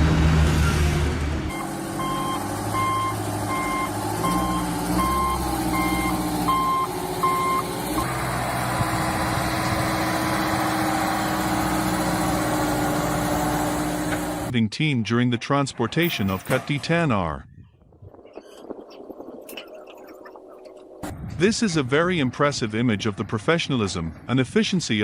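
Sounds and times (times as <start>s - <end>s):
truck engine running: 0.0s - 14.5s
truck reversing alarm beeping: 1.5s - 14.0s.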